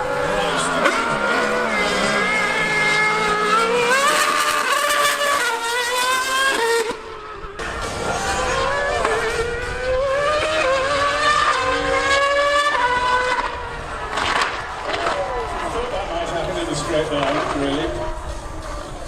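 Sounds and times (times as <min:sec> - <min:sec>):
racing engine accelerating: 0:00.0 - 0:19.0.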